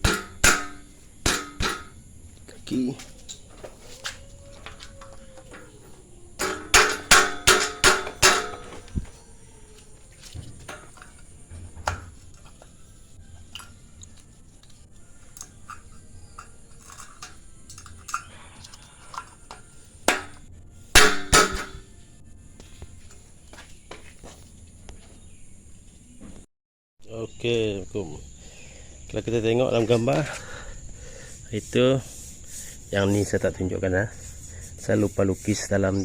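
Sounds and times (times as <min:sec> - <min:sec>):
metal parts clanking: 0:00.0 - 0:22.0.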